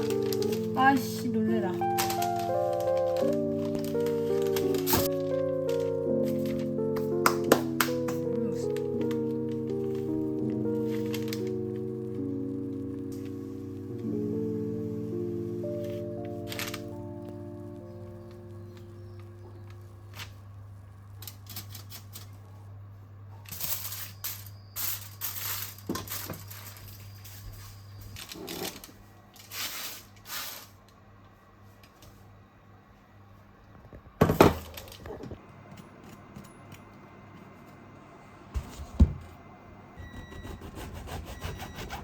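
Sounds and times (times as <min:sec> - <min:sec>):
household handling noise: 0:00.0 - 0:11.8
low steady hum: 0:00.0 - 0:42.0.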